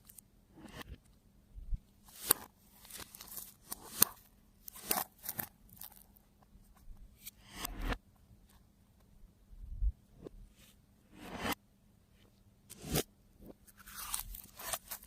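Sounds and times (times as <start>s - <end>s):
slime crackling and popping: 2.1s - 6.2s.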